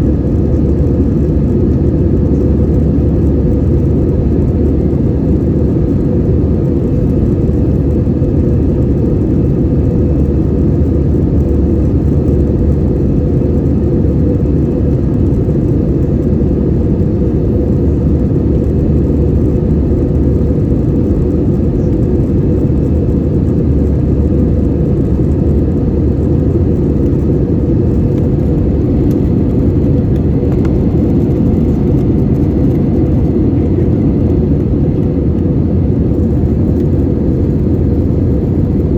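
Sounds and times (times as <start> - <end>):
airplane cabin drone: 0.0 - 38.9.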